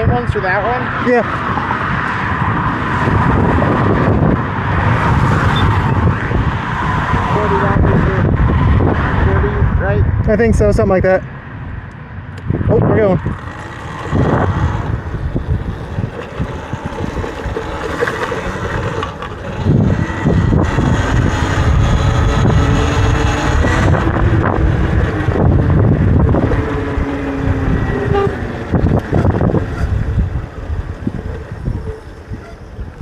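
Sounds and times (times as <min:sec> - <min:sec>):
wind buffeting microphone: 0:00.0 - 0:33.0
electric motor whine: 0:12.7 - 0:32.9.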